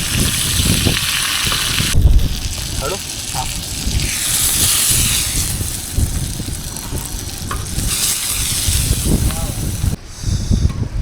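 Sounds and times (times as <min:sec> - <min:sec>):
fish sizzling in oil: 0:00.0 - 0:10.0.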